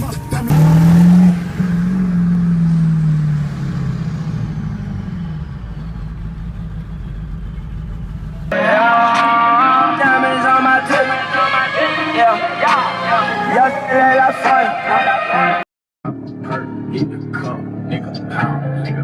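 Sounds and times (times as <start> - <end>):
rap music: 0.0 - 0.9, 8.5 - 19.0
vehicle engine revving: 0.0 - 15.4, 16.1 - 19.0
low rumble: 1.3 - 8.6.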